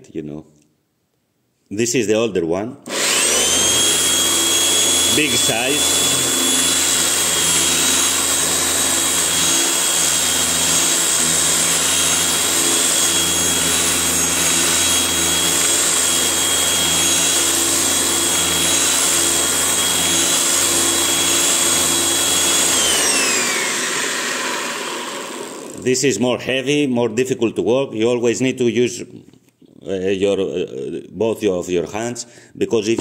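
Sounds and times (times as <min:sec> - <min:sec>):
power sander whining: 0:02.9 - 0:25.9.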